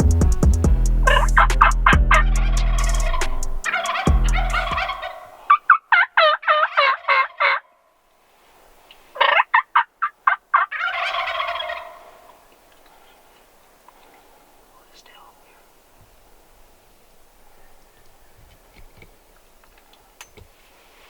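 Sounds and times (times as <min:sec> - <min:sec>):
turkey rattling gobble: 0:01.0 - 0:07.7, 0:09.2 - 0:12.5
turkey yelps: 0:01.0 - 0:07.7, 0:09.2 - 0:12.4.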